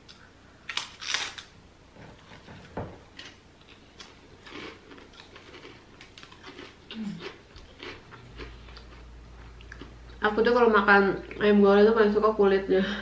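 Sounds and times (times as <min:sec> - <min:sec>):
chewing crispy cracker: 0:03.2 - 0:10.0.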